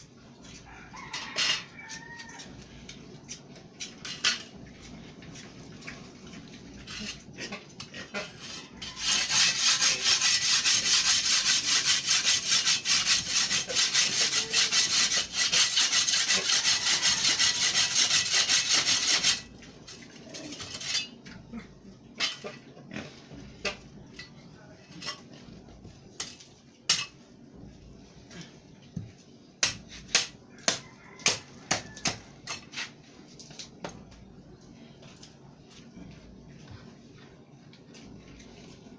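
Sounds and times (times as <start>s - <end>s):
concrete block grating: 6.8s - 21.2s.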